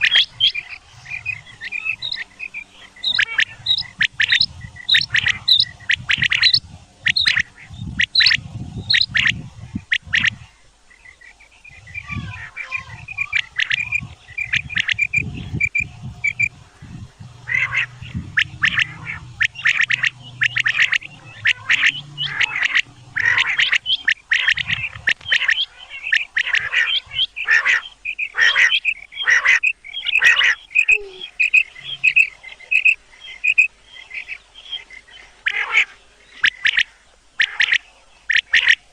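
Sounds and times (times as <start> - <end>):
bird chirping: 0.0 - 38.9
game birds rasping calls: 0.0 - 38.9
low rumble: 0.3 - 10.6, 11.6 - 25.6.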